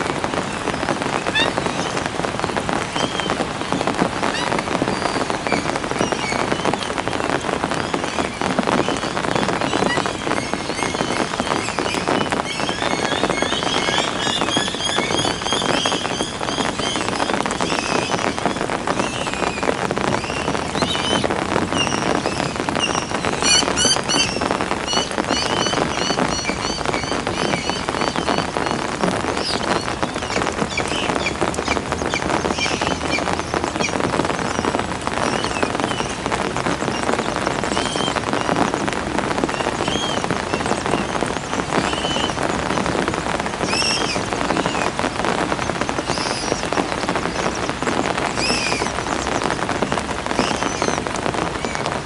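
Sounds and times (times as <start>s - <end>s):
heavy rain falling: 0.0s - 52.0s
high bird chirps: 7.8s - 18.4s, 19.0s - 36.2s.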